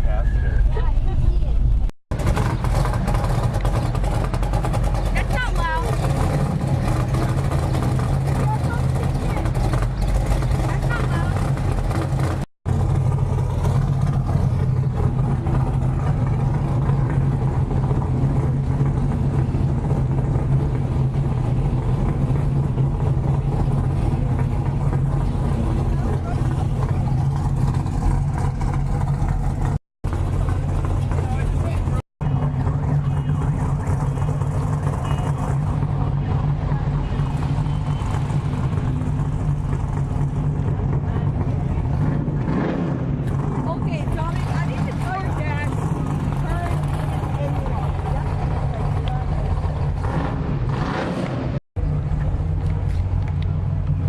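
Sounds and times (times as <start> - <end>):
car engine running: 0.0 - 54.0.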